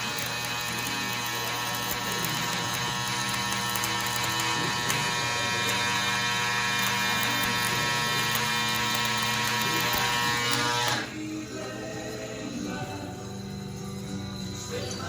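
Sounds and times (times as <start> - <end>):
electric buzz of welder: 0.0 - 11.4.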